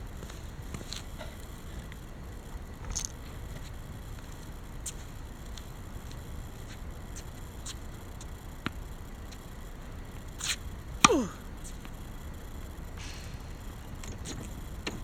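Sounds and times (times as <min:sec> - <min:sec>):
racket striking shuttlecock: 0:11.0 - 0:12.0, 0:13.0 - 0:14.2.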